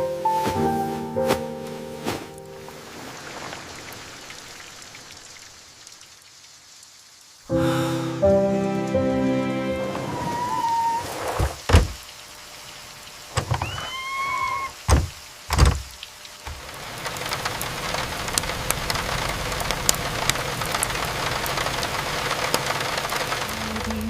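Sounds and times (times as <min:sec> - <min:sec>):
rain falling: 0:00.0 - 0:24.0
water drips ticking: 0:02.4 - 0:07.4, 0:14.8 - 0:24.0
wavering squeak: 0:09.7 - 0:11.2, 0:13.6 - 0:14.8
loud thumps: 0:11.4 - 0:12.0, 0:14.9 - 0:15.9.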